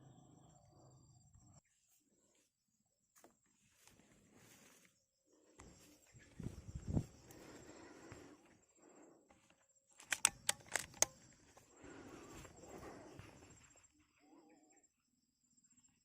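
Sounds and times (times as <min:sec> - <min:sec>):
sharp clicks: 0:09.9 - 0:11.3.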